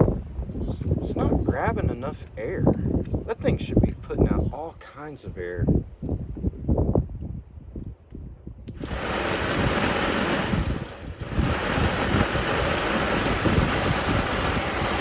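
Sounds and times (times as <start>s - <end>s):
heater blower fan rushing air: 8.7s - 15.0s.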